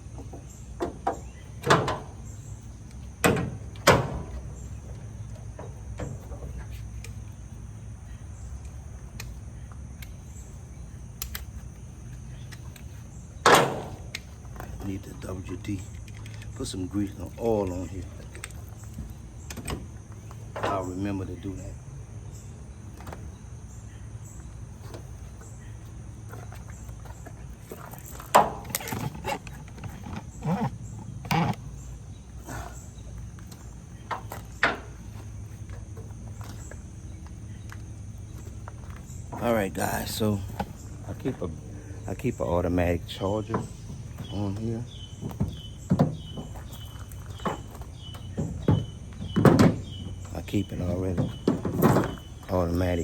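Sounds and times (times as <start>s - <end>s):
crickets trilling: 0.0s - 53.0s
sharp clicks: 11.1s - 11.7s
metal hinge creaking and squealing: 27.8s - 32.6s.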